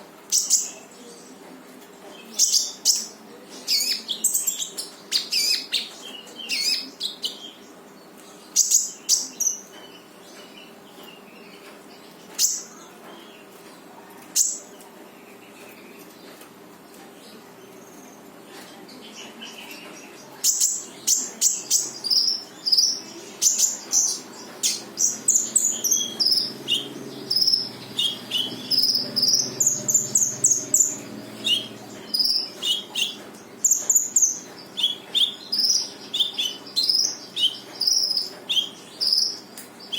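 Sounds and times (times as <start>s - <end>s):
songbird chirping rapidly: 20.3s - 39.9s.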